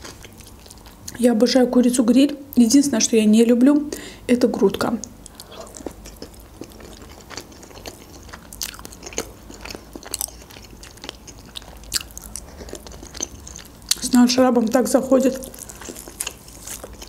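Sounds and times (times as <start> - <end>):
person chewing: 0.0 - 1.2, 5.1 - 17.0.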